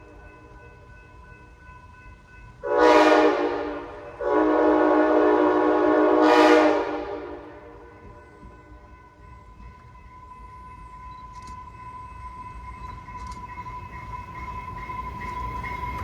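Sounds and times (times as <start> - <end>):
locomotive air horn blasts: 2.6 - 8.0.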